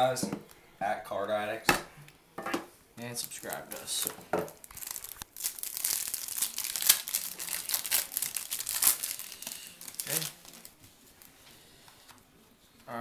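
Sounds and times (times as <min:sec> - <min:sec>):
plastic wrapping crinkling: 0:03.1 - 0:11.4
plastic ripping: 0:03.2 - 0:10.8.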